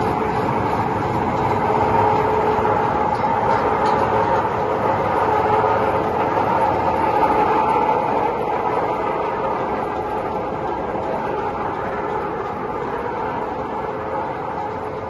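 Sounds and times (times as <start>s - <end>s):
machinery grinding: 0.0s - 15.0s
machinery hum: 0.0s - 15.0s.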